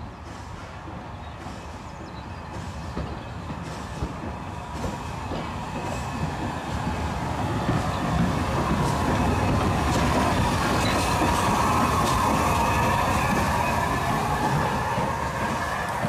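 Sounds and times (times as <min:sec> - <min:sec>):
wheels clicking over rail joints: 0:03.0 - 0:16.0
high wheel squeal: 0:04.5 - 0:16.0.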